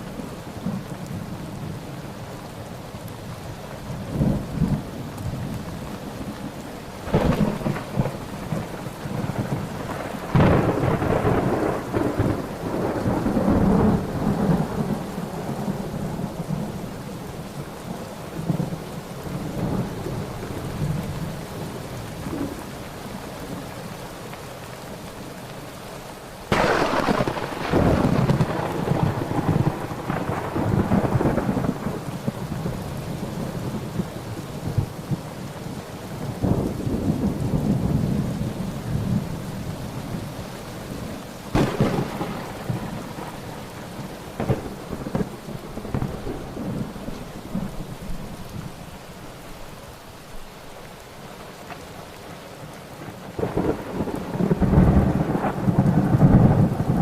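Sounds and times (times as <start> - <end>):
steady rain: 0.0 - 57.0
rolling thunder: 7.0 - 16.7, 26.5 - 35.2, 41.5 - 48.7, 53.4 - 57.0.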